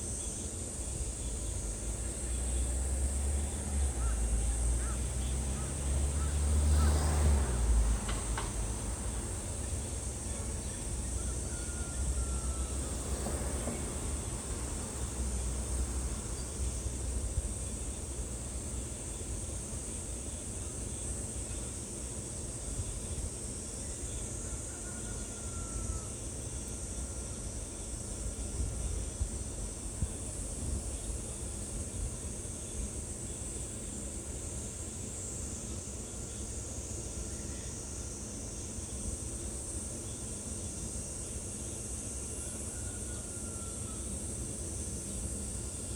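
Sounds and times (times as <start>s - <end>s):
faint falling whistles: 11.2s - 13.0s.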